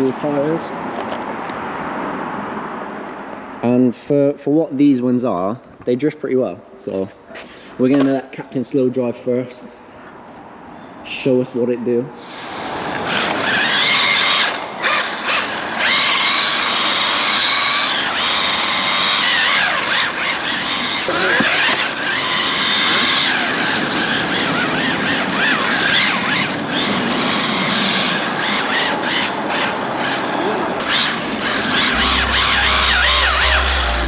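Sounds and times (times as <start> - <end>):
rc car electric whine: 12.2 - 34.0
tyres squealing: 12.3 - 34.0.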